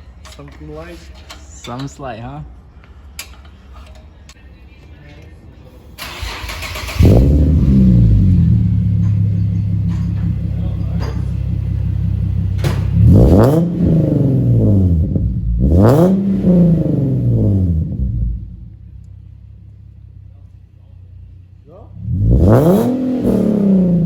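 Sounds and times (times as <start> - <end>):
car engine revving: 6.0 - 19.0, 21.9 - 24.0
car engine idling: 6.0 - 22.5
car engine starting: 6.0 - 24.0.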